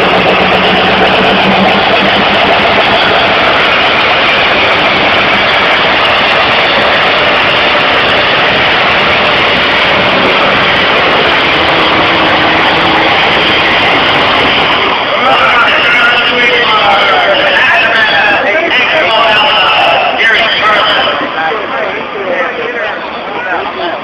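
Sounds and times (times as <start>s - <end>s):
loud vehicle engine running: 0.0s - 15.4s.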